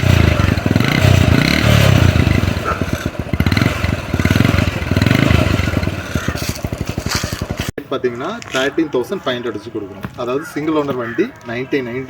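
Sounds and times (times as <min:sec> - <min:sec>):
small engine revving: 0:00.0 - 0:07.7.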